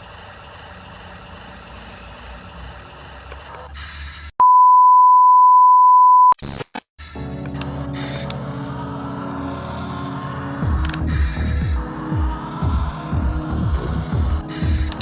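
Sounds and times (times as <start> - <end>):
electronic beep tone: 4.4 - 6.4
glitchy bursts: 6.4 - 15.0.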